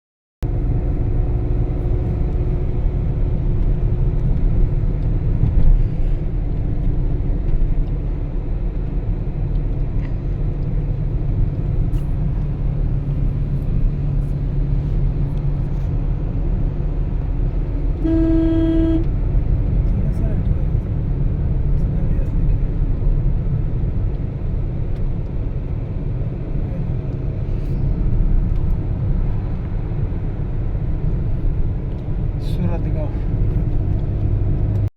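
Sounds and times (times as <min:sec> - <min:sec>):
car driving at highway speed: 0:00.4 - 0:34.9
vehicle horn: 0:18.0 - 0:19.1.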